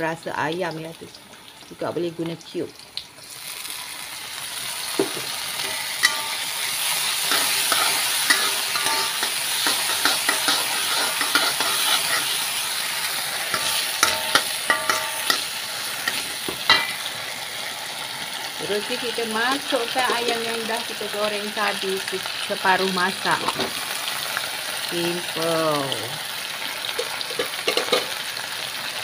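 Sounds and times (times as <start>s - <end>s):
sauce sizzling in a wok: 0.0s - 29.0s
spatula clanking on a wok: 5.0s - 12.4s, 13.4s - 17.1s, 27.0s - 28.2s
metal spatula scraping a wok: 5.6s - 17.1s.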